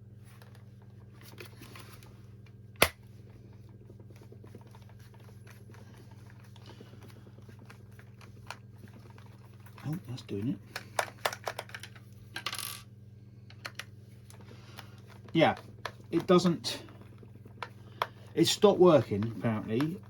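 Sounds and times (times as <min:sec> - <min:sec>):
steady low hum: 0:00.0 - 0:20.0
plastic handling clicks: 0:10.7 - 0:12.0, 0:17.0 - 0:20.0.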